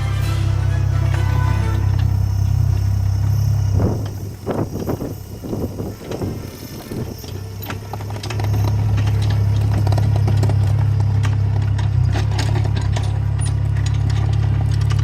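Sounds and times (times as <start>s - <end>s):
excavator diesel engine droning: 0.0s - 15.0s
clicks and rattles: 7.1s - 15.0s.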